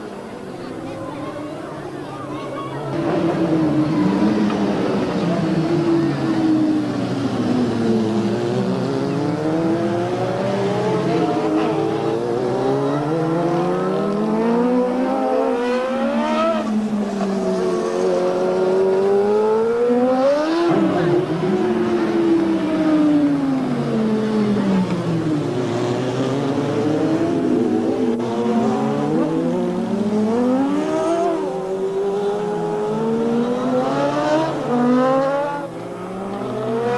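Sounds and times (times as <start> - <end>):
motorcycles racing past: 2.8 - 36.9.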